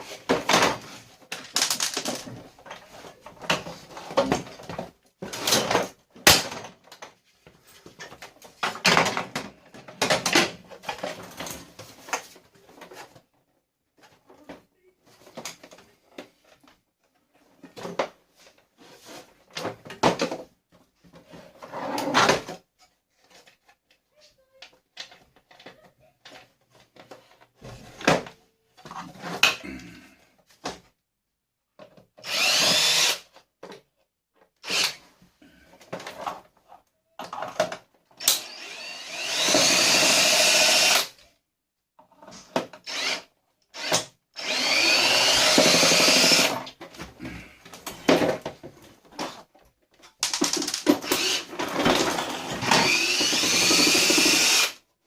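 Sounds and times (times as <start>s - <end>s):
parts knocking and clattering: 0.0s - 13.2s, 44.6s - 54.7s
power drill running: 32.2s - 33.2s, 34.6s - 35.0s, 38.2s - 41.1s, 42.8s - 46.6s, 51.0s - 54.8s.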